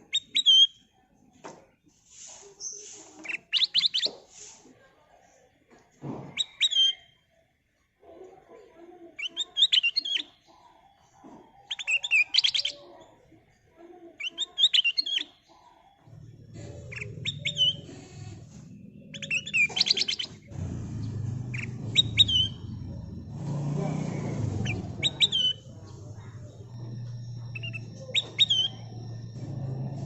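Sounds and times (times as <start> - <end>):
bird singing whistled notes: 6.3 - 7.2, 16.2 - 17.9, 18.8 - 30.0
low rumble: 20.4 - 30.0.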